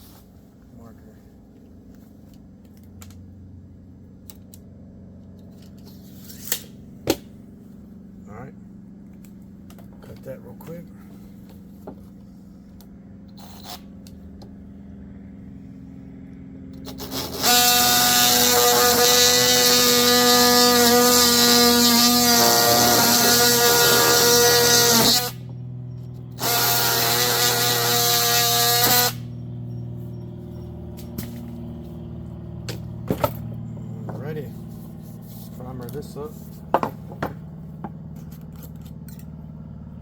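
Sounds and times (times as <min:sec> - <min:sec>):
power saw cutting pipe: 0:16.8 - 0:25.6, 0:26.2 - 0:29.3.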